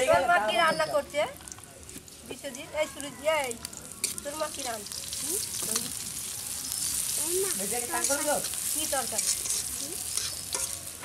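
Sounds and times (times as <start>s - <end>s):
garlic sizzling in oil: 1.0s - 11.0s
metal spatula scraping pan: 7.9s - 11.0s.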